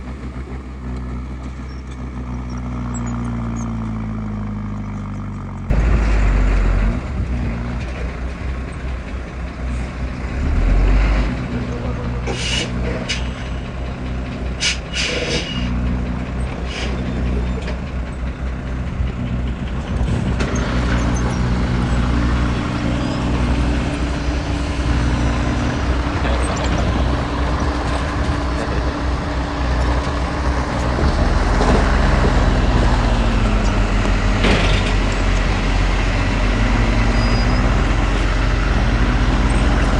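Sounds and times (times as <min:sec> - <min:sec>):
diesel engines running: 0:00.0 - 0:39.9
short sharp hisses or clanks: 0:12.3 - 0:13.3, 0:14.6 - 0:15.7, 0:16.7 - 0:17.0.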